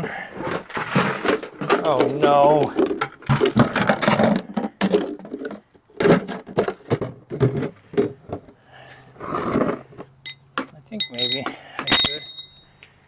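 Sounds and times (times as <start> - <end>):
metal parts clinking: 10.2 - 12.8.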